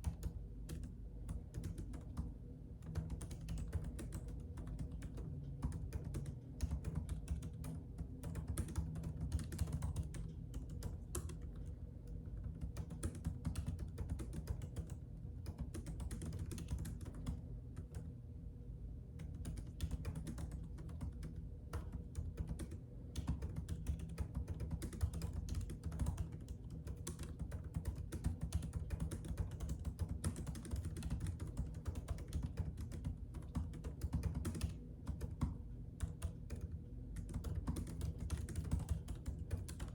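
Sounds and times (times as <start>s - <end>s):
keyboard typing clicks: 0.0s - 18.1s, 19.2s - 39.9s
steady low hum: 0.0s - 39.9s.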